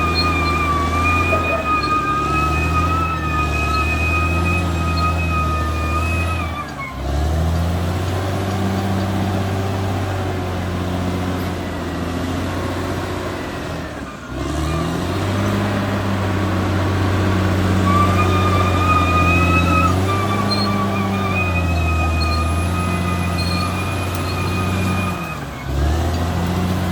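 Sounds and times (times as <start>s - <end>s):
high whine: 0.0s - 5.1s
bulldozer diesel engine under load: 0.0s - 26.9s.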